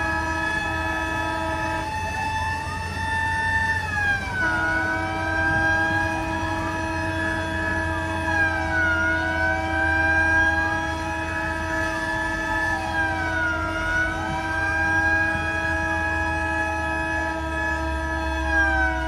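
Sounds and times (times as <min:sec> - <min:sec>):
fire truck sirens wailing: 0:00.0 - 0:19.0
low engine rumble: 0:00.0 - 0:19.0.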